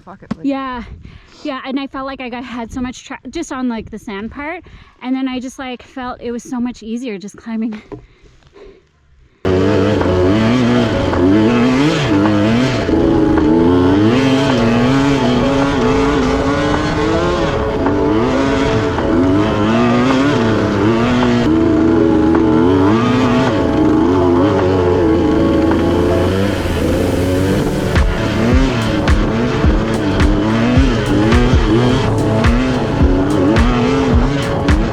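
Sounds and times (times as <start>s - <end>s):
dirt bike engine revving: 9.5s - 34.9s.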